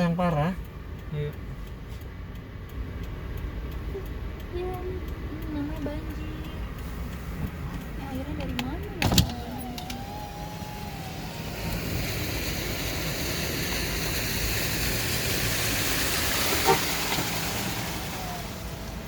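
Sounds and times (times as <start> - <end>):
car engine and road rumble: 0.0 - 19.0
tyres spraying floodwater: 9.3 - 19.0.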